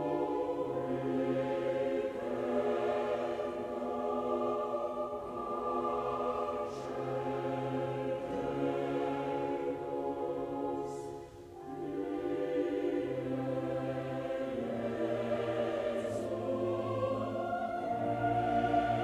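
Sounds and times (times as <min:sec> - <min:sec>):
choir singing sustained chords: 0:00.0 - 0:19.0.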